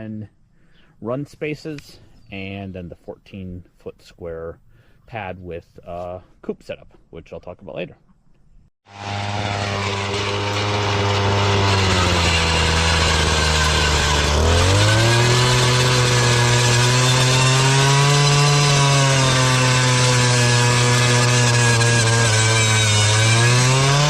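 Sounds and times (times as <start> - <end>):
small gasoline engine revving: 8.8 - 24.0.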